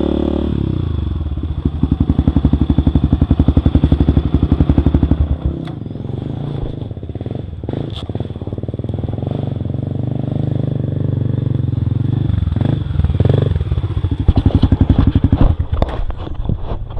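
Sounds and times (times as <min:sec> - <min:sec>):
motorcycle engine at low revs: 0:00.0 - 0:16.9
knocks and clatters: 0:14.2 - 0:16.9.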